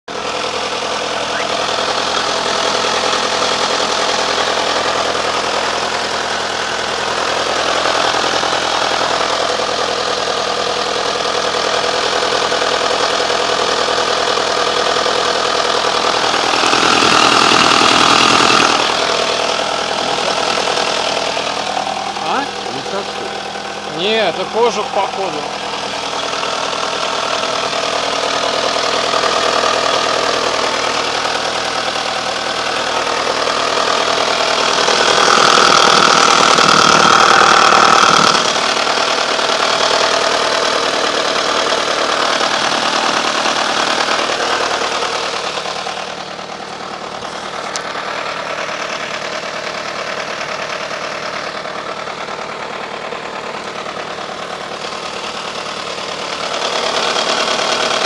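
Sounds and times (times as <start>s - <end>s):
car engine running unevenly: 0.1s - 58.0s
timing belt tensioner noise: 32.8s - 39.9s.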